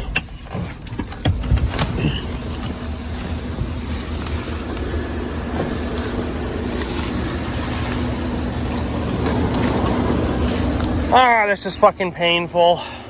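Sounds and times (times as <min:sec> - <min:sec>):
road rumble: 0:00.0 - 0:13.0
vehicle engine hum: 0:00.0 - 0:13.0.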